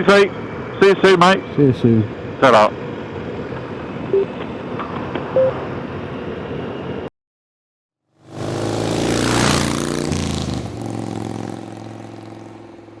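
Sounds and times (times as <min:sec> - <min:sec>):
wind and road noise: 0:00.0 - 0:07.1, 0:08.2 - 0:13.0
motorcycle engine revving: 0:08.2 - 0:13.0.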